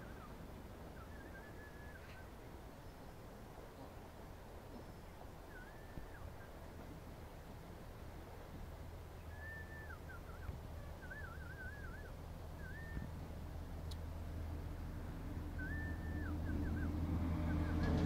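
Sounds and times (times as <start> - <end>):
bird singing whistled phrases: 0.0 - 2.3, 5.5 - 6.5, 9.2 - 13.2, 15.6 - 17.8
low steady hum: 0.0 - 18.0.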